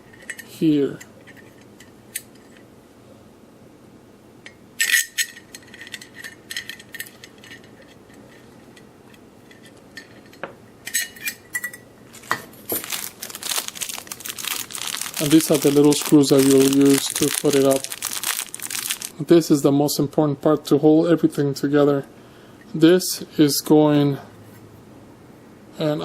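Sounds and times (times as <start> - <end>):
small metal parts clinking: 10.9 - 19.1.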